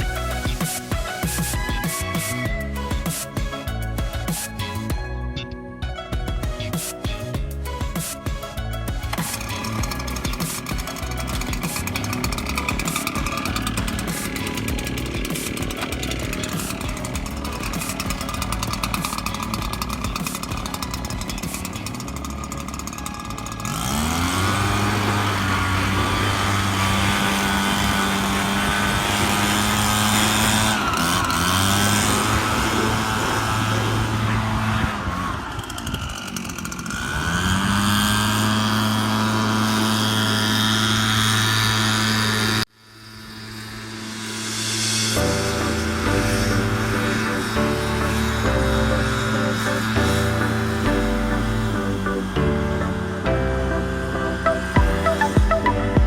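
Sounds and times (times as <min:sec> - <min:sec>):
string trimmer revving: 0:08.9 - 0:42.7, 0:45.1 - 0:55.8.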